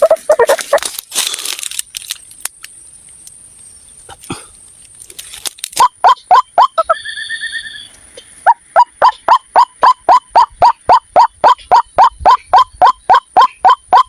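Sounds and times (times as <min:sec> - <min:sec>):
waterhen calling sharp repeated notes: 0:00.0 - 0:00.8, 0:05.8 - 0:14.0
fast high bird trill: 0:05.8 - 0:14.0.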